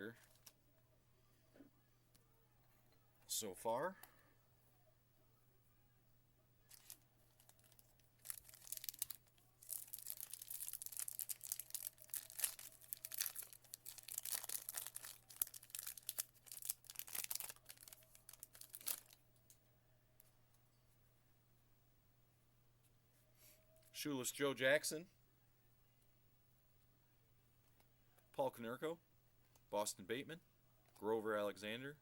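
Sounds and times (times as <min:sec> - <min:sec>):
wrapper torn and crinkled: 0:06.7 - 0:19.2.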